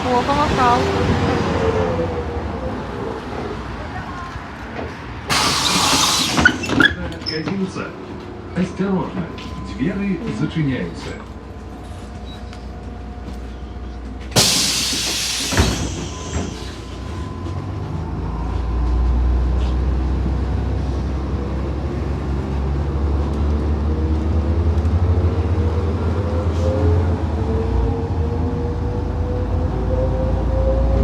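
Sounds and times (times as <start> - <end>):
diesel bus engine accelerating: 0.0 - 31.0
compressed air hiss of bus doors: 5.3 - 6.9, 14.4 - 17.0
engine whine: 7.7 - 31.0.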